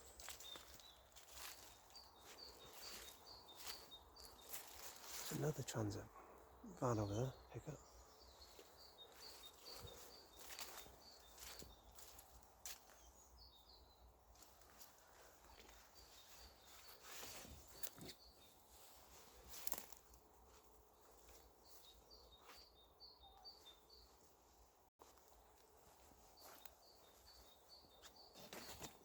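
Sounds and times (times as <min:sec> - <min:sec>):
small bird chirping: 0:00.0 - 0:05.6, 0:06.6 - 0:20.1, 0:21.0 - 0:24.3
footsteps: 0:08.5 - 0:13.0.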